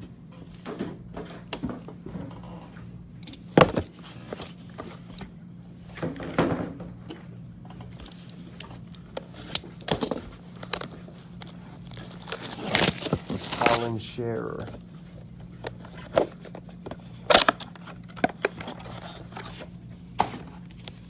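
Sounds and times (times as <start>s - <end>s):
faint steady hum: 0.0s - 21.0s
card packaging crinkling and tearing: 8.8s - 19.7s.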